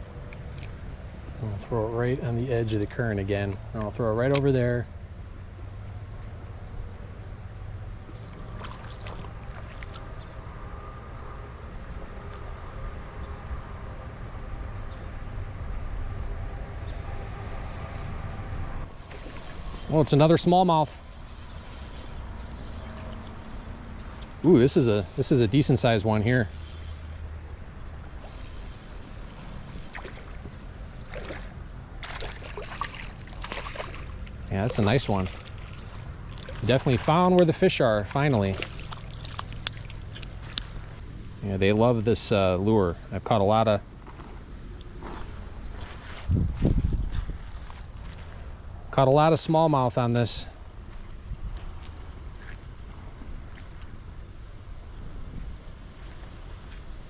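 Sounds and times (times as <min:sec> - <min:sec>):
crickets chirping: 0:00.0 - 0:57.0
high insect drone: 0:00.0 - 0:57.0
fish splashing in water: 0:08.5 - 0:10.1, 0:18.9 - 0:23.7, 0:28.1 - 0:37.4, 0:38.1 - 0:41.0
faint ticks: 0:18.9 - 0:31.4, 0:32.8 - 0:37.5, 0:38.1 - 0:41.0.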